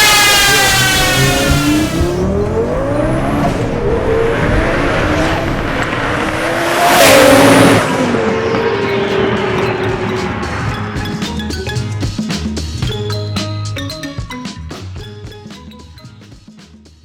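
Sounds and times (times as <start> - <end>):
loud rushing burst: 0.0 - 11.4
sports car engine accelerating: 0.0 - 11.7.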